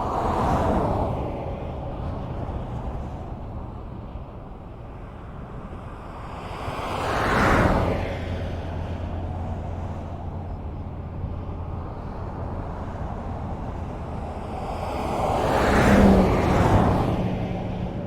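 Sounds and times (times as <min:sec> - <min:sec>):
highway traffic rumble: 0:00.0 - 0:18.0.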